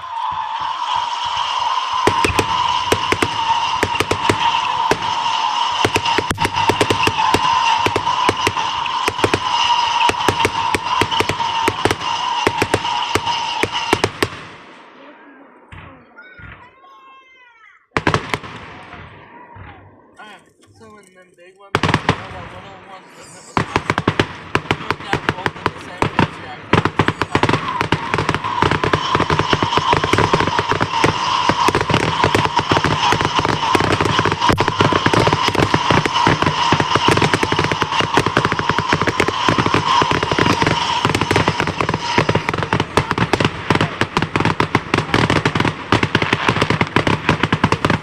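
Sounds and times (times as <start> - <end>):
firework crackling pops: 0.0 - 14.9, 21.8 - 48.0
firework high whistle: 0.0 - 16.9, 22.0 - 48.0
steady high tone: 27.7 - 43.2.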